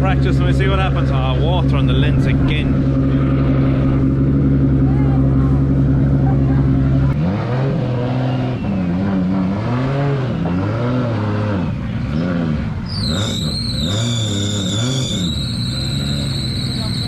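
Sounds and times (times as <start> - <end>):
car engine revving: 0.0 - 17.0
tyre squeal: 12.2 - 17.0.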